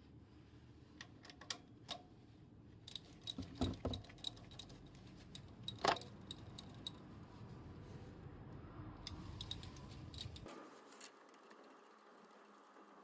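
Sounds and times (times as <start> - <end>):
metal tools clinking: 2.9 - 7.0, 9.1 - 10.5.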